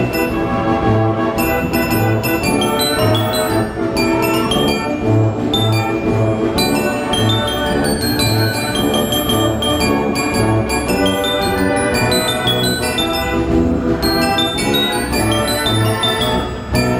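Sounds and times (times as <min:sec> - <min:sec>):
bells ringing melody: 0:00.0 - 0:00.8, 0:01.4 - 0:16.9
band organ bass pipes: 0:00.0 - 0:16.9
brass-toned organ pipes: 0:00.0 - 0:16.9.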